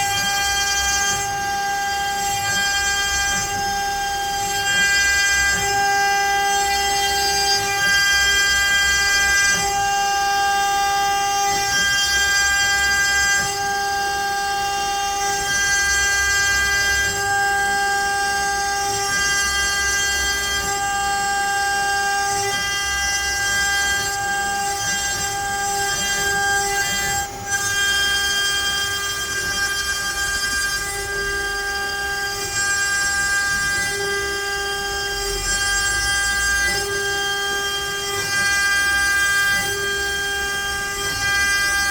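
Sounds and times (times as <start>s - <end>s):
router spindle whining: 0.0s - 41.9s.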